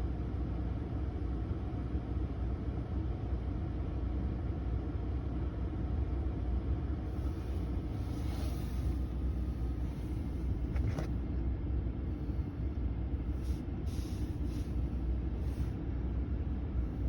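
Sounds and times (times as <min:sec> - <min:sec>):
blower moving air through vents: 0:06.9 - 0:17.0.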